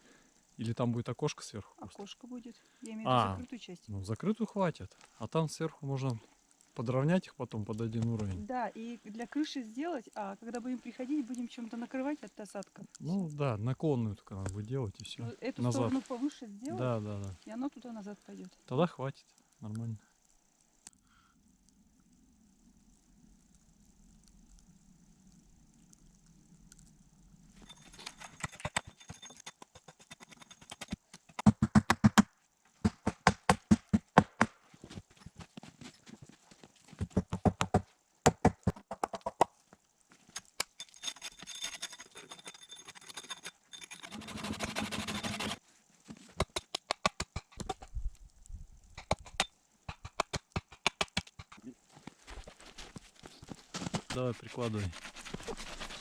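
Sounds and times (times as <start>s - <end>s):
knocking and tapping on wood: 31.3s - 34.5s, 37.0s - 39.5s
rasping: 40.4s - 45.6s, 52.3s - 56.0s.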